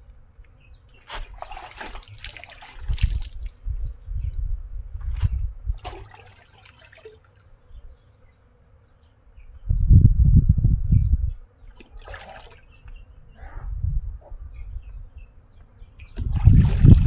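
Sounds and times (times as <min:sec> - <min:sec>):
water splashing and trickling: 0:00.9 - 0:07.5, 0:11.6 - 0:13.0, 0:16.0 - 0:17.0.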